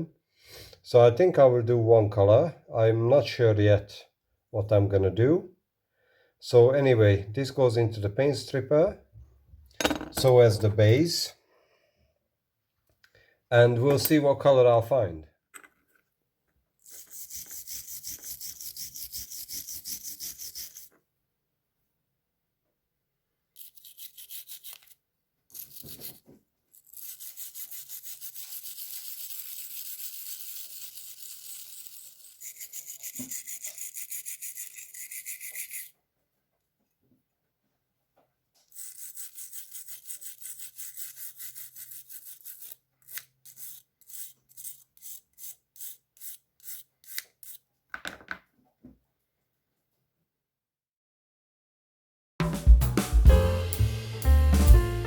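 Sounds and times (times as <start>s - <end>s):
stiff brush scrubbing: 16.8s - 20.9s, 26.8s - 35.9s, 38.7s - 47.6s.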